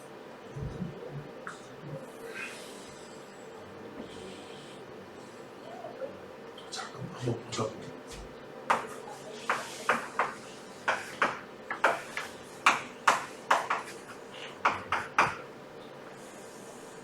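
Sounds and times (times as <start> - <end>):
writing taps on a board: 8.1 - 15.4.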